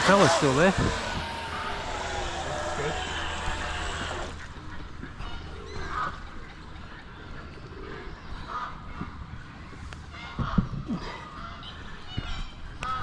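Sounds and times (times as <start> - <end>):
motor hum: 0.0 - 4.8
outdoor background noise: 0.0 - 13.0.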